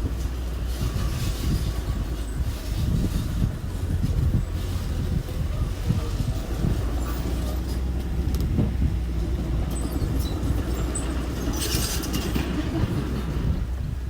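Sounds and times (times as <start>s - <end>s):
construction machine engine running: 0.0s - 14.0s
short squeaks: 9.7s - 12.6s.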